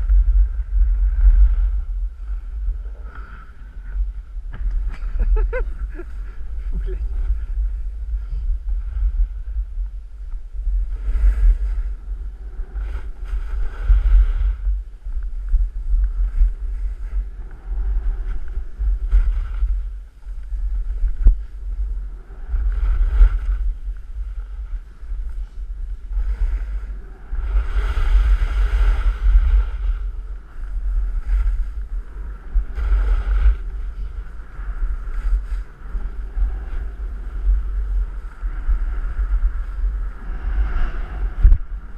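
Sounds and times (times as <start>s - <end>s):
wind rumbling on microphone: 0.0s - 41.9s.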